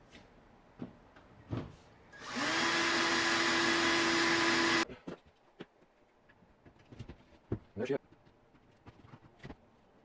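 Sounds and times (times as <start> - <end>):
electric drill whining: 2.2 - 4.8.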